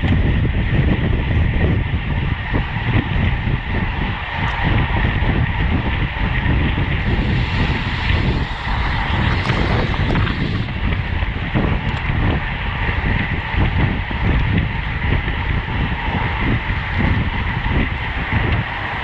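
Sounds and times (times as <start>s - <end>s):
wind buffeting microphone: 0.0s - 19.0s
road noise rushing: 6.4s - 11.6s.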